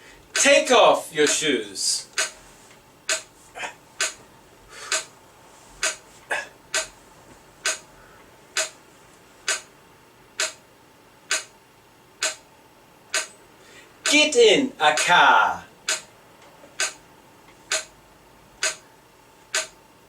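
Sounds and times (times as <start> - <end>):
percussive clicks on a beat: 2.1 - 2.4, 3.1 - 3.3, 4.0 - 4.2, 4.9 - 5.1, 5.8 - 6.0, 6.7 - 7.0, 7.6 - 7.9, 8.6 - 8.8, 9.5 - 9.7, 10.4 - 10.6, 11.3 - 11.6, 12.2 - 12.5, 13.1 - 13.4, 15.9 - 16.1, 16.8 - 17.0, 17.7 - 18.0, 18.6 - 18.9, 19.5 - 19.8.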